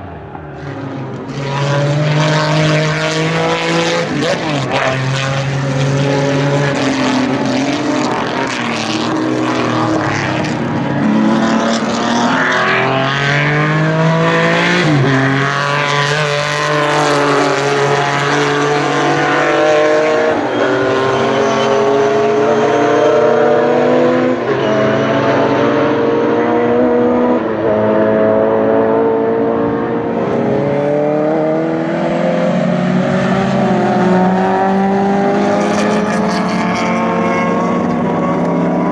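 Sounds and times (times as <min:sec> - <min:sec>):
racing car engines revving: 0:00.0 - 0:38.9.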